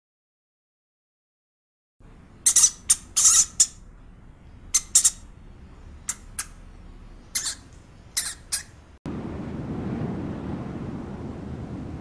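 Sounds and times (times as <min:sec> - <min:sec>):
rat squeaking: 0:02.4 - 0:03.9, 0:04.7 - 0:05.4, 0:06.0 - 0:08.9.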